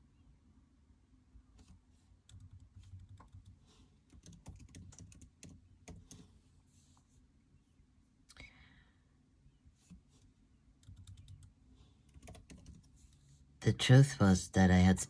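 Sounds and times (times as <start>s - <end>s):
faint clicking and tapping: 1.5s - 7.1s, 9.8s - 13.4s.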